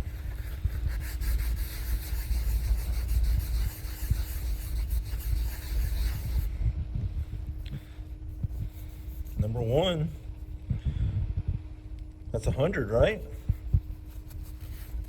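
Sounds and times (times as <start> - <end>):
paper towel scrubbing metal: 0.0 - 6.7, 7.8 - 10.2, 13.0 - 15.0.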